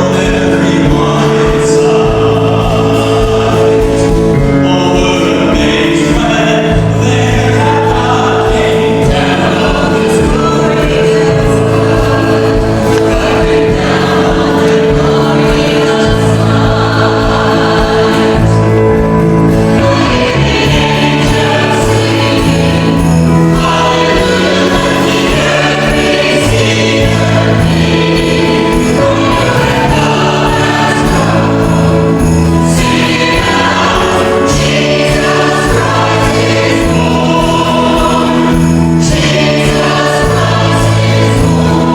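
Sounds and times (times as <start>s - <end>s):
church choir singing: 0.0s - 41.9s
instrumental accompaniment: 0.0s - 41.9s.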